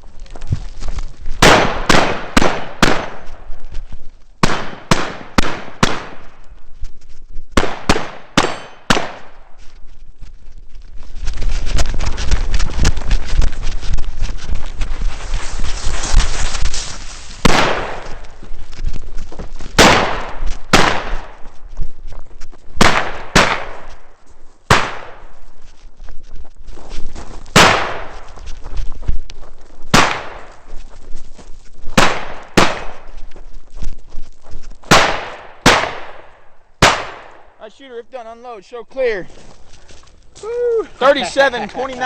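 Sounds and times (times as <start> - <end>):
shotgun shots: 1.4 - 3.3, 4.4 - 6.3, 7.6 - 9.4, 17.4 - 18.2, 19.8 - 21.4, 22.8 - 23.9, 24.7 - 25.3, 27.6 - 28.2, 29.9 - 30.5, 32.0 - 33.0, 34.9 - 37.5.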